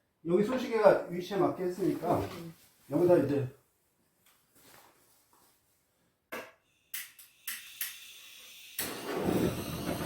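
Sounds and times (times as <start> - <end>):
fire hissing: 7.4 - 10.0.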